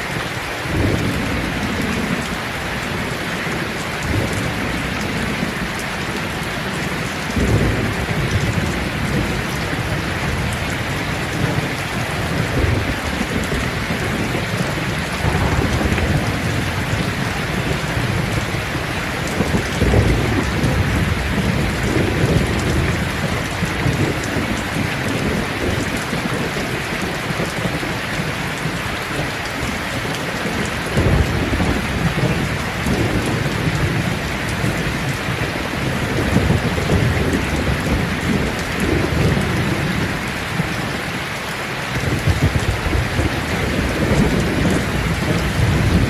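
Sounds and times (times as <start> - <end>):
rain pattering on leaves: 0.0 - 46.0
low rumbling: 11.2 - 23.1.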